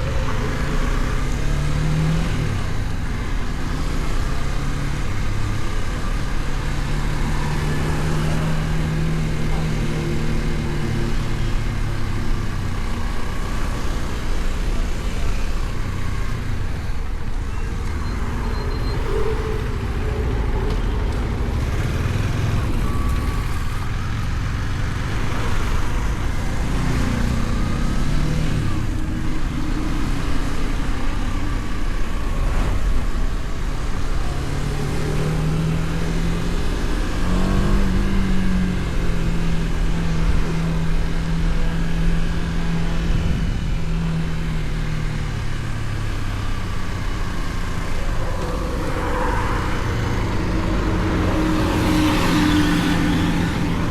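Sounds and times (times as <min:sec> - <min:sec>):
motorcycle engine running: 0:04.8 - 0:28.0
wind rush on microphone: 0:46.4 - 0:53.9.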